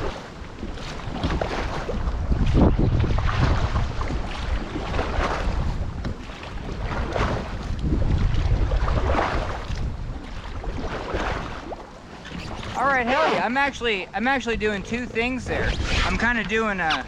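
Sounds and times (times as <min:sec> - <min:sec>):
paddle splashing into water: 0:00.0 - 0:14.4
wind buffeting microphone: 0:00.0 - 0:17.0.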